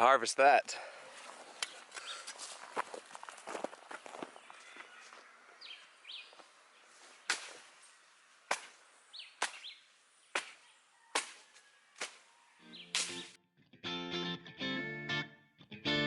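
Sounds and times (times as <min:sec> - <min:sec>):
bird chirps: 0:04.0 - 0:08.2, 0:12.3 - 0:13.3
chopping into plant trunk: 0:07.2 - 0:07.6, 0:09.4 - 0:09.7, 0:10.4 - 0:10.6, 0:11.2 - 0:12.2.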